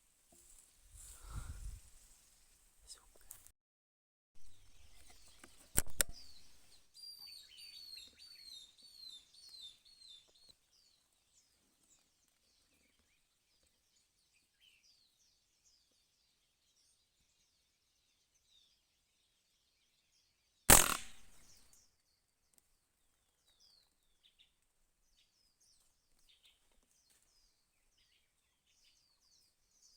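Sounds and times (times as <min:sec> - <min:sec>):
bird chirping: 0:04.4 - 0:20.0
sharp crack: 0:20.7 - 0:21.6.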